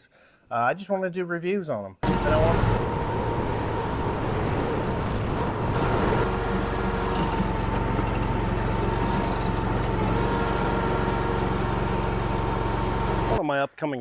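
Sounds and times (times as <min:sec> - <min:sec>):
thin steady whine: 0:02.0 - 0:08.4
gas engine running: 0:02.0 - 0:13.4.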